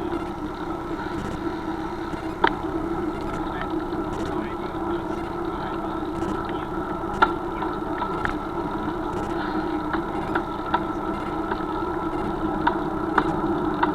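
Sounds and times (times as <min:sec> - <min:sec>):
sharp ticks: 0:00.0 - 0:13.9
steady motor hum: 0:00.0 - 0:13.9.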